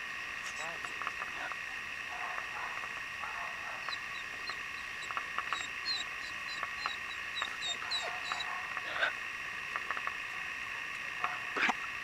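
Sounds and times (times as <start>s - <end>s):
steady background noise: 0.0s - 12.0s
small birds chirping: 3.5s - 9.1s.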